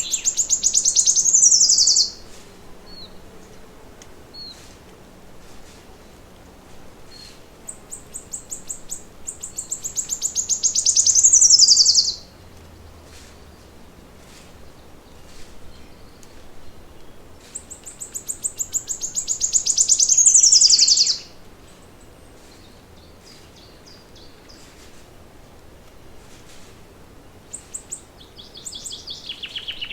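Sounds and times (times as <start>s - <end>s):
faint bird chirps: 0.0s - 2.2s, 7.1s - 12.3s, 15.6s - 22.0s
songbird singing trill: 0.0s - 3.3s, 7.0s - 12.9s, 14.6s - 24.8s, 27.2s - 29.9s.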